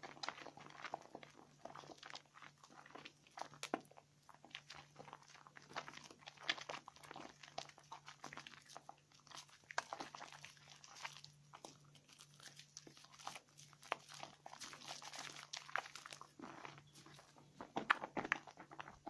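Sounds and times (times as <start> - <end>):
soap lathering in hands: 0.0 - 19.0.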